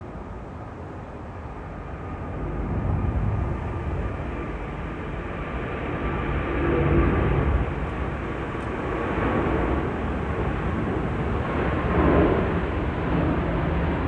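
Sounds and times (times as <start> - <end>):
jet engine rumble and whine: 0.0 - 14.0.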